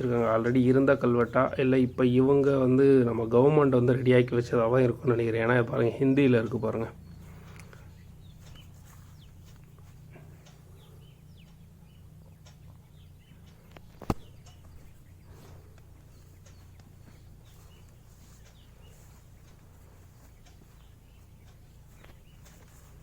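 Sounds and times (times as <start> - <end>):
faint birds chirping: 0.0 - 23.0
steady low hum: 0.0 - 23.0
sharp click: 13.6 - 14.7.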